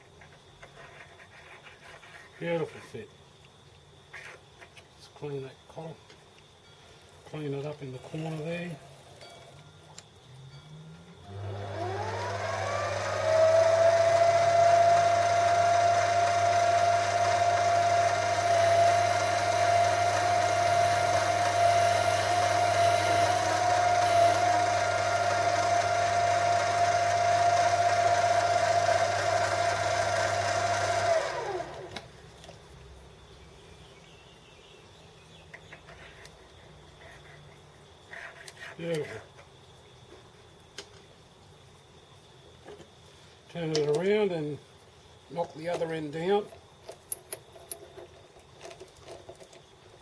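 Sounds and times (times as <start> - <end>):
metal lathe motor whine: 10.9 - 32.0.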